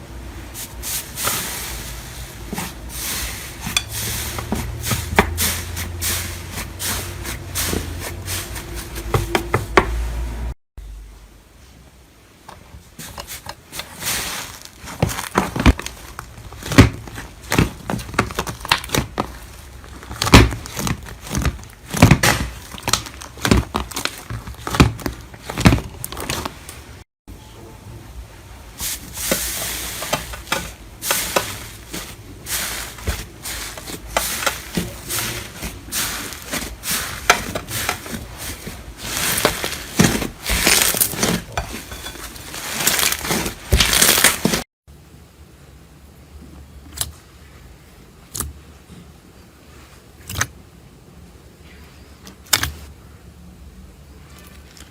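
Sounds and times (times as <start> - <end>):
slime crackling and popping: 14.6 - 26.6, 35.2 - 41.5, 42.5 - 44.6.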